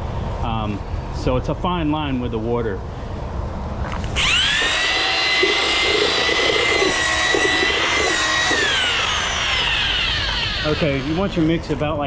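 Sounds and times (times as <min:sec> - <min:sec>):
electric drill mixing concrete: 0:03.9 - 0:12.0.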